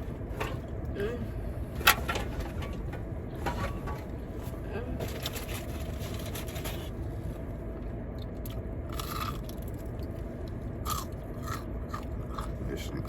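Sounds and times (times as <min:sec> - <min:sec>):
crunching and chewing fried chicken: 0:05.1 - 0:13.0.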